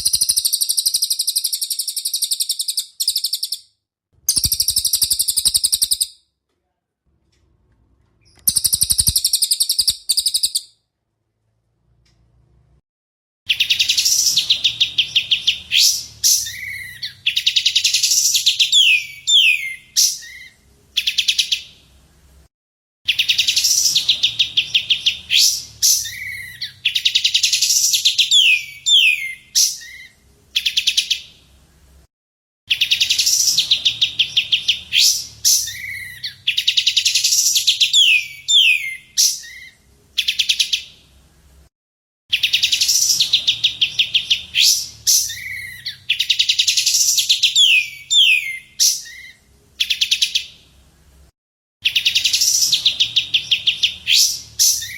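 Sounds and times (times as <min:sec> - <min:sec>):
songbird trill and whistles: 0:00.0 - 0:03.6, 0:04.3 - 0:06.2, 0:08.3 - 0:10.7, 0:13.5 - 0:21.7, 0:23.1 - 0:31.3, 0:32.7 - 0:40.9, 0:42.3 - 0:50.6, 0:51.8 - 0:54.9.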